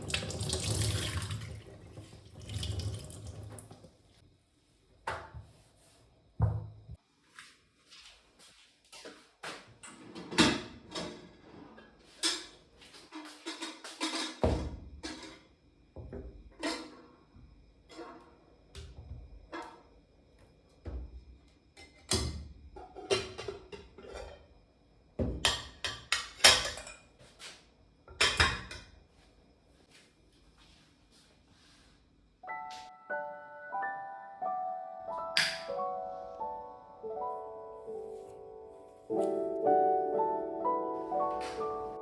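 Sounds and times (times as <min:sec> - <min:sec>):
faint background music: 0:32.4 - 0:42.0.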